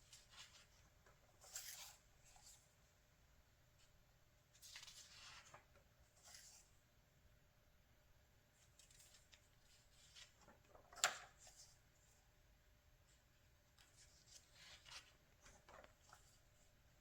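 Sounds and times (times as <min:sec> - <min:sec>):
magazine pages rustling and turning: 0:00.1 - 0:02.6, 0:04.5 - 0:06.7, 0:08.6 - 0:11.7, 0:13.8 - 0:16.6.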